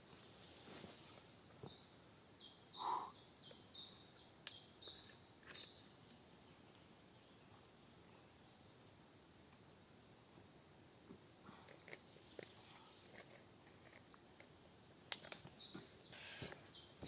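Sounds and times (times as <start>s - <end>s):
small songbird singing: 1.6s - 7.5s, 15.5s - 17.0s
louder lower bird call: 16.1s - 16.6s.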